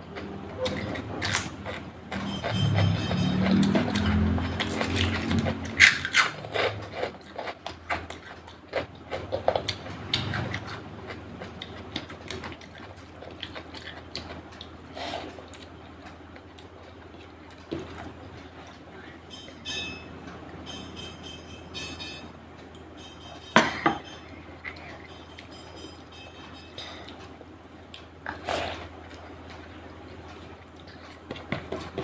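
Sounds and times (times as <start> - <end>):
chewing with crunches: 0.1 - 19.6, 24.4 - 32.0.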